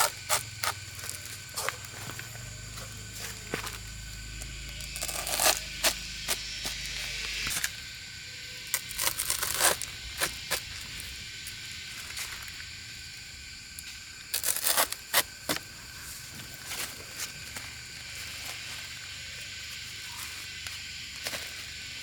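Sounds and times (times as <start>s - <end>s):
high outdoor hiss: 0.0s - 22.0s.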